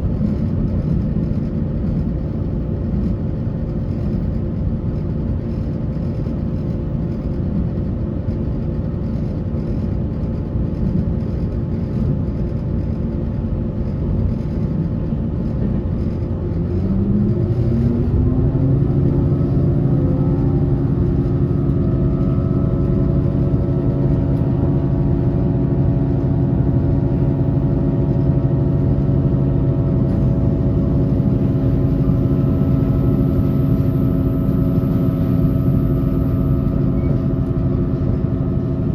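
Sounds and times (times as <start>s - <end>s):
train rolling rumble: 0.0s - 38.9s
humming motor tone: 15.5s - 38.9s.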